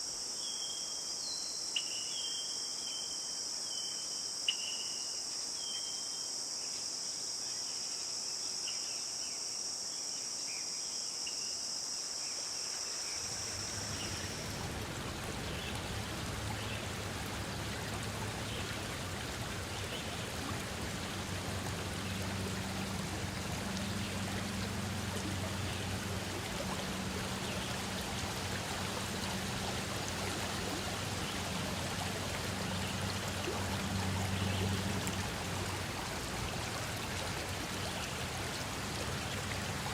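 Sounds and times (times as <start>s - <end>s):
insect chorus buzzing: 0.0s - 39.9s
stream water rushing: 12.8s - 39.9s.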